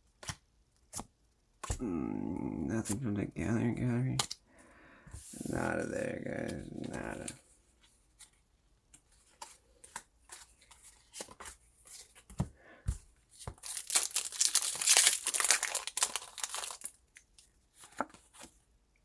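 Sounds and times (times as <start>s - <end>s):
foil wrapper ripping: 13.6s - 17.0s
foil wrapper crinkling: 13.6s - 17.4s.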